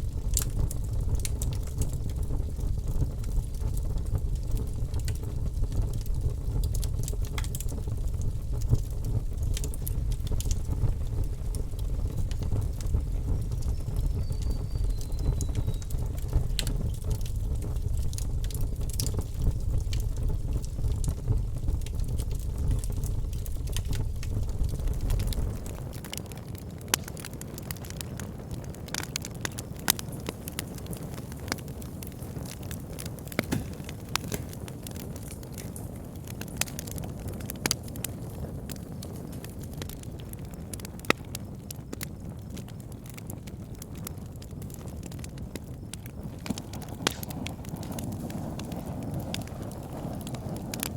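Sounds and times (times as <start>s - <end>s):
soft steady hiss: 0.0s - 27.6s
wood fire crackling and popping: 0.0s - 50.9s.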